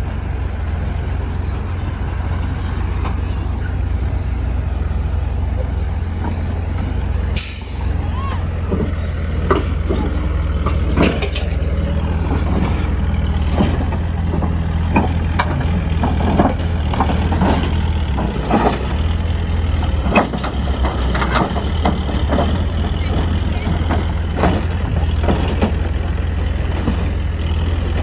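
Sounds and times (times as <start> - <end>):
heavy diesel engine running: 0.0 - 28.0
metallic clanks and knocks: 8.6 - 28.0.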